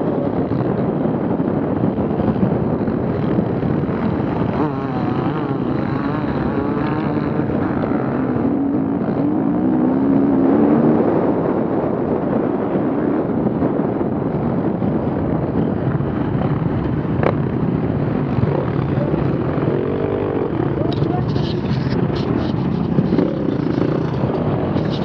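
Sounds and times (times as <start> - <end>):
off-road vehicle engine revving: 2.4 - 11.4, 18.0 - 25.0.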